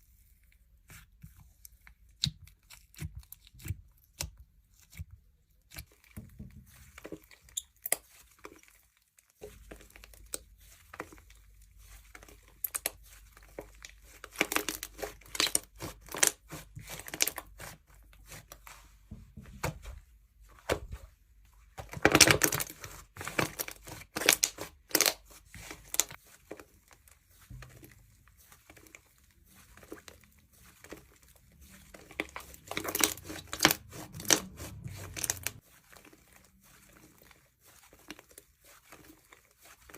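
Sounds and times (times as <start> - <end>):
slime crackling and popping: 22.0 - 26.2, 32.0 - 35.7.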